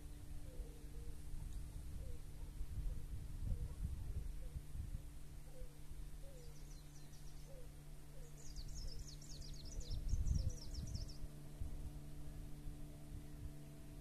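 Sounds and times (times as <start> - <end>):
steady low hum: 0.0 - 14.0
songbird singing high falling notes: 5.5 - 11.4.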